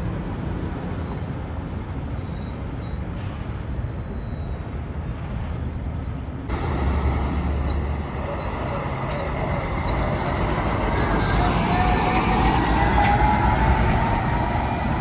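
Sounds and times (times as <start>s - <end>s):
heavy trucks driving past: 6.5s - 15.0s.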